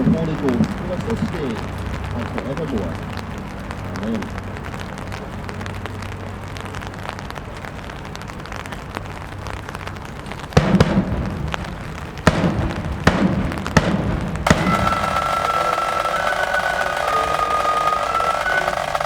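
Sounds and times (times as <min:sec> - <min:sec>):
rain hissing: 0:00.0 - 0:19.0
loud drum beats: 0:12.3 - 0:19.0.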